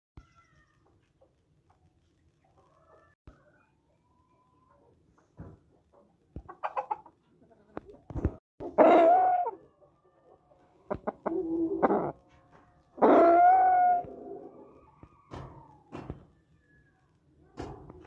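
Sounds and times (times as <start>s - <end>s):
chickens clucking: 4.7s - 12.3s
long chicken calls: 8.6s - 12.2s, 13.0s - 17.0s.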